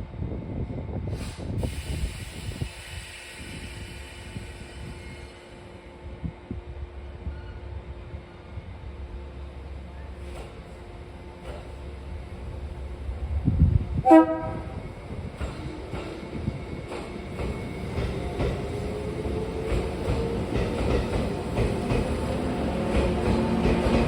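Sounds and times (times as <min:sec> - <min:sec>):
train horn blast: 0:14.0 - 0:14.8
train wheel clatter: 0:14.3 - 0:24.0.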